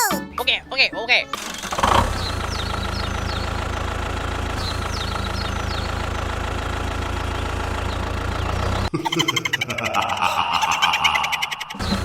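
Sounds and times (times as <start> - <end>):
engine idling: 1.4 - 8.9.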